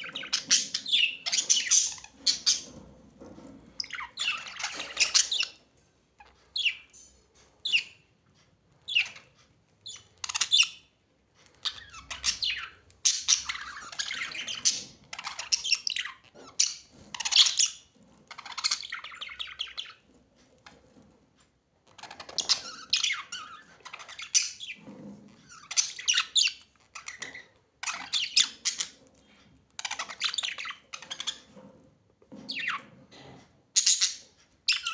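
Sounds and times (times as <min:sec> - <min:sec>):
birds making harsh high calls: 0:03.8 - 0:05.6.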